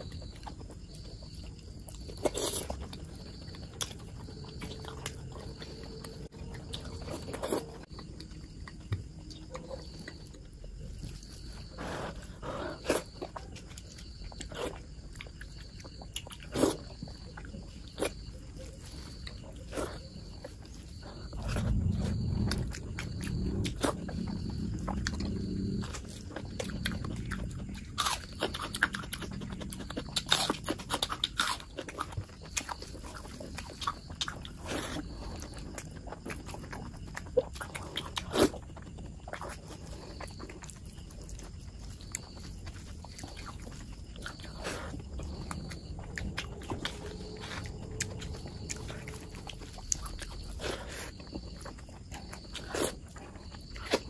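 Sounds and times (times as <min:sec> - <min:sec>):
wet chewing and mouth smacks: 0:00.0 - 0:54.0
low hum: 0:44.5 - 0:50.6.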